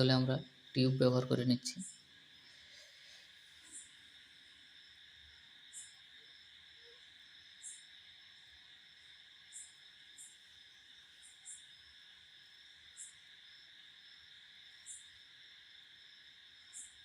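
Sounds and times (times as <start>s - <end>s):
faint high hiss: 0.0s - 17.0s.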